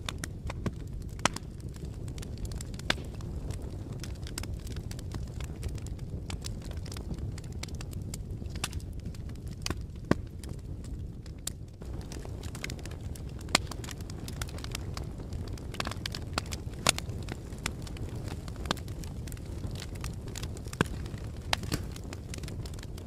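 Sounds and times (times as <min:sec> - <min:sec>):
fire crackling and popping: 0:00.0 - 0:23.0
low rumble of flames: 0:00.0 - 0:23.0.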